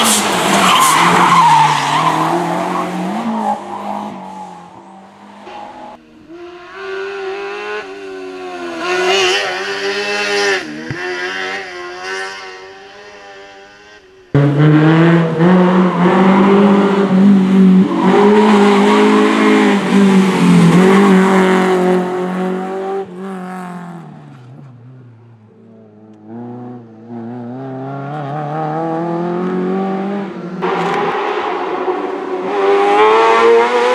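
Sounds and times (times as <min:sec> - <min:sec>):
race car engines revving: 0:00.0 - 0:33.9
car at high revs close by: 0:06.5 - 0:13.8, 0:26.2 - 0:33.9.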